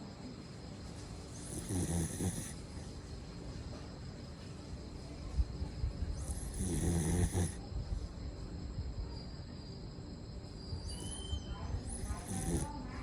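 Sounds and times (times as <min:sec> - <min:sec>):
dog snoring: 0:01.3 - 0:03.0, 0:06.2 - 0:07.6, 0:11.8 - 0:12.9.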